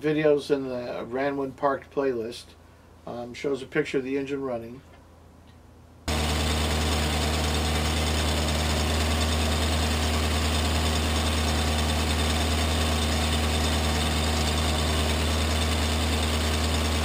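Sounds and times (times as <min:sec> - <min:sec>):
car engine idling: 0:06.1 - 0:17.0.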